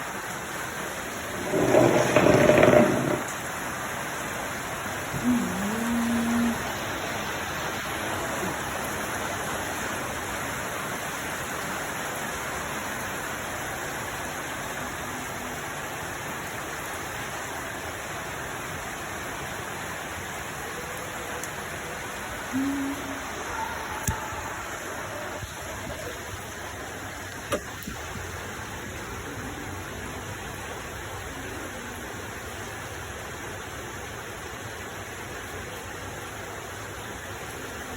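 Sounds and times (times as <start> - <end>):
water rushing: 0.0 - 37.9
brief low tones: 22.5 - 24.3.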